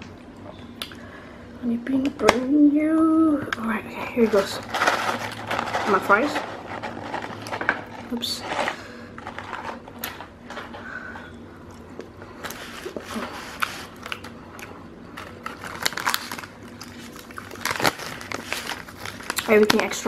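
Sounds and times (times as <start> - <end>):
chewing crunchy fries: 11.5 - 19.8.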